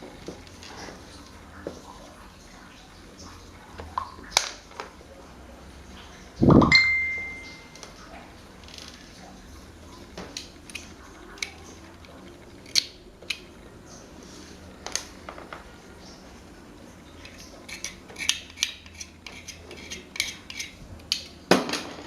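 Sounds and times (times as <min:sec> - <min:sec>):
metal parts clicking and tapping: 0:17.2 - 0:21.9.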